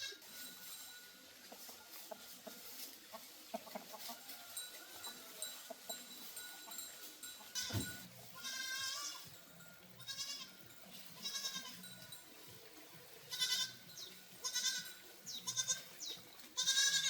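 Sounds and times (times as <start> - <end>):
animal bleating call: 0.0 - 0.3, 7.6 - 9.3, 10.0 - 12.0, 13.3 - 17.0.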